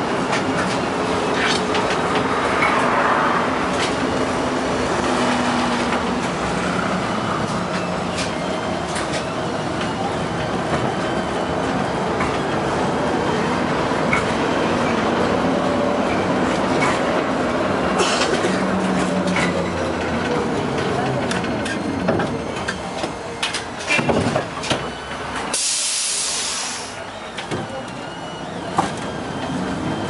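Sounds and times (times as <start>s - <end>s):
tram rolling rumble: 0.0s - 30.0s.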